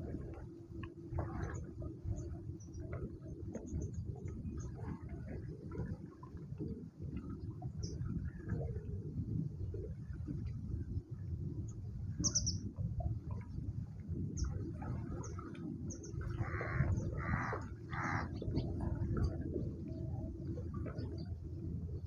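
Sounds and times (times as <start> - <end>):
steady low rumble: 0.0 - 22.0
birds chirping: 15.9 - 18.8
harsh bird calls: 16.4 - 18.3.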